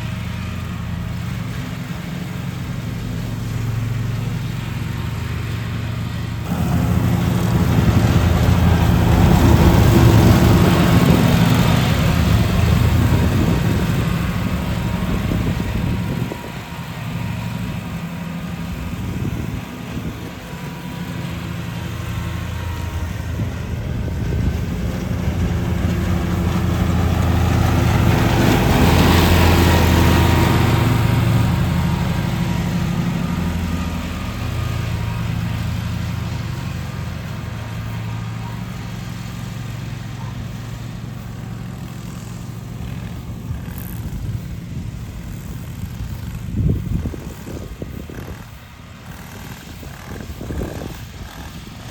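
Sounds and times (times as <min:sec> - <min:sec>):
lawn mower engine running: 0:00.0 - 0:51.9.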